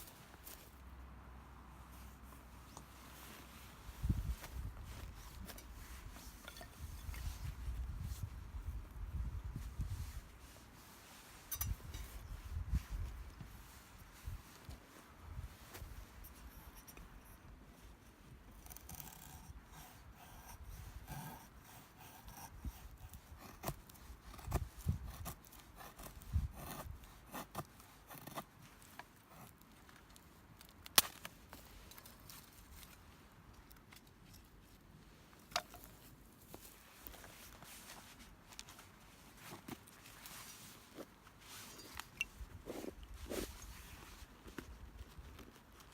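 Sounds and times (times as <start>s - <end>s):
rubbing and scraping: 2.0s - 8.4s.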